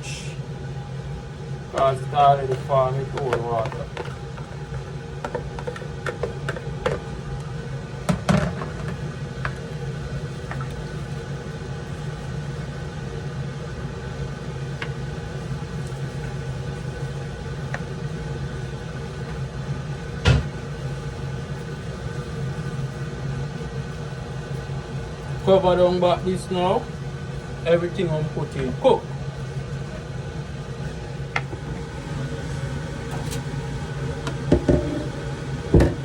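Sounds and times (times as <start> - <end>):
steady background hum: 0.0 - 36.0
spoon knocking on cooking pot: 35.7 - 36.0.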